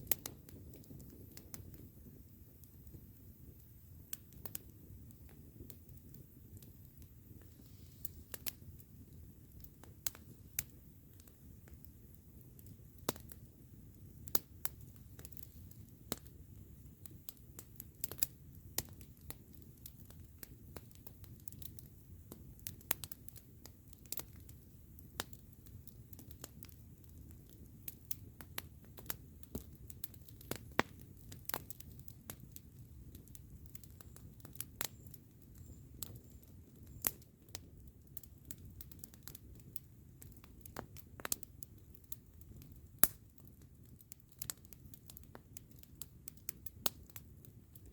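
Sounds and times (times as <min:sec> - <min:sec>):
campfire wood crackling: 0:00.0 - 0:47.9.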